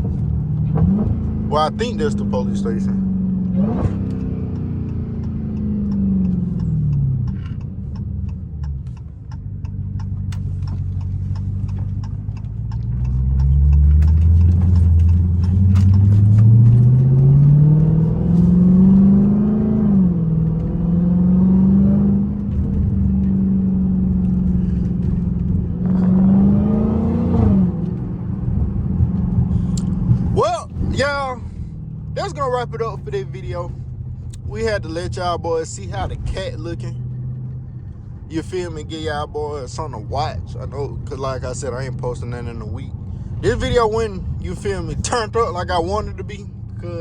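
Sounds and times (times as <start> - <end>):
car exhaust revving: 0.0 - 47.0
sharp ticks: 4.1 - 16.4.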